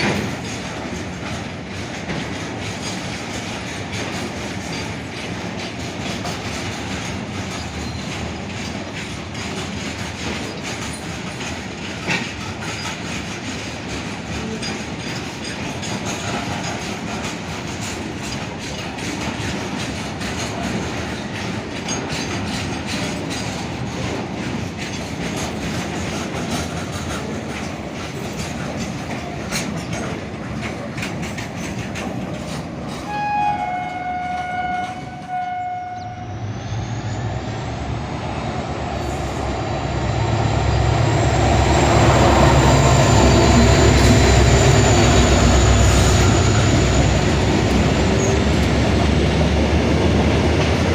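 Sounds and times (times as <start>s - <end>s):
train wheels clattering over rails: 0.0s - 35.9s, 36.9s - 50.9s
locomotive rumble with whine: 27.0s - 50.9s
locomotive horn: 33.0s - 36.5s.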